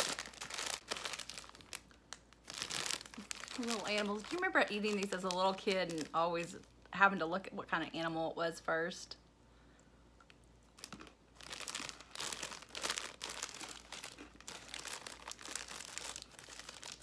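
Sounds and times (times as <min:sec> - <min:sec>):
cracker crunching being chewed: 0:10.2 - 0:17.0.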